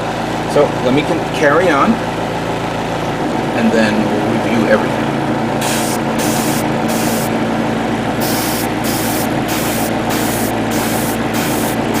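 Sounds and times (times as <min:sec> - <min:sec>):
steady hum: 0:00.0 - 0:12.0
airbrush spraying hiss: 0:05.6 - 0:07.3, 0:08.2 - 0:12.0.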